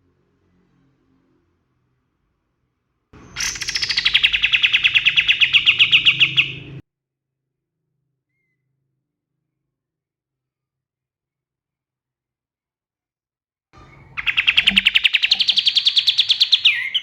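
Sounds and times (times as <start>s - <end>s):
bird singing rapid trill: 3.2s - 6.8s, 13.8s - 17.0s.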